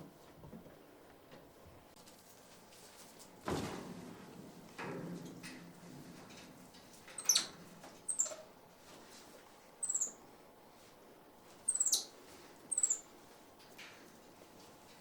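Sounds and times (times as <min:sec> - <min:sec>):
monkey chirping squeaks: 0:07.2 - 0:07.5, 0:08.1 - 0:08.4, 0:09.8 - 0:10.2, 0:11.7 - 0:12.1, 0:12.7 - 0:13.0.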